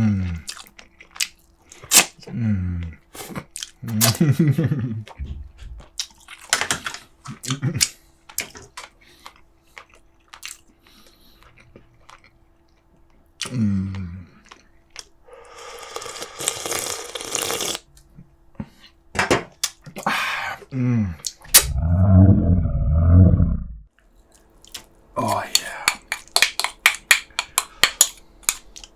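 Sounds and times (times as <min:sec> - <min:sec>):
man chewing: 0:00.3 - 0:02.2, 0:02.8 - 0:04.3, 0:05.0 - 0:06.5, 0:07.2 - 0:19.0, 0:21.1 - 0:21.9, 0:24.1 - 0:28.9
short hum: 0:21.5 - 0:23.8.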